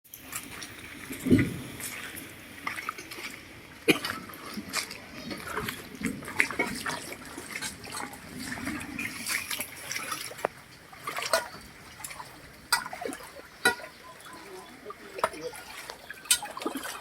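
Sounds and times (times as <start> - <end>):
water trickling at a drain: 0.1 - 17.0
wet splashes and clicks: 3.9 - 14.0, 15.1 - 17.0.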